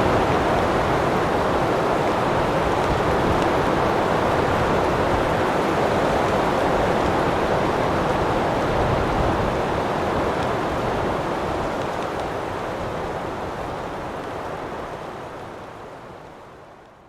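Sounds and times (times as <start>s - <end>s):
strong wind blowing: 0.0s - 11.7s.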